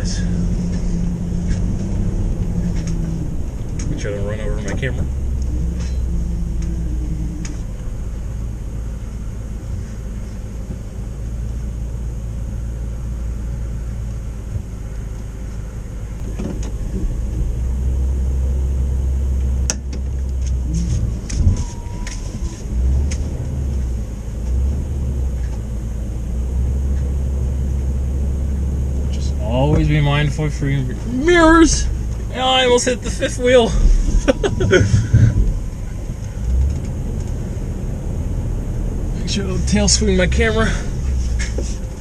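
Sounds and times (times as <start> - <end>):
motorhome engine running: 0.0 - 42.0
sharp clicks and knocks: 16.2 - 17.4.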